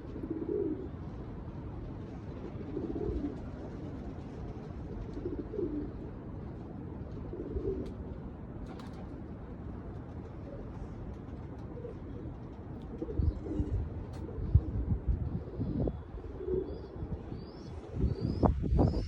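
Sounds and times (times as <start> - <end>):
pigeon cooing: 0.0 - 1.0, 2.4 - 3.5, 4.9 - 6.0, 7.3 - 7.9, 12.9 - 19.0
wind noise: 13.0 - 19.0.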